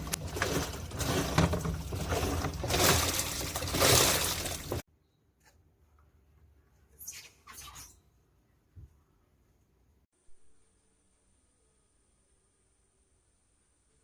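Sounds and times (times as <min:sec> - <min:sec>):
water rushing into washing machine: 0:00.0 - 0:04.9.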